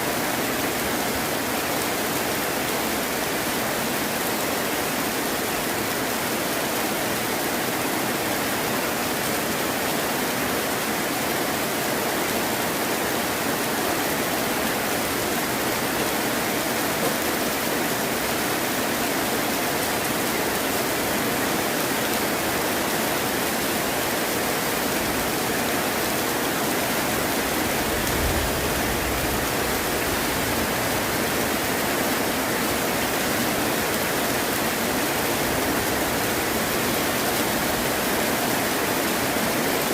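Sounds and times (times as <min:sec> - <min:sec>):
heavy rain: 0:00.0 - 0:39.9
distant thunder rumble: 0:27.7 - 0:31.1.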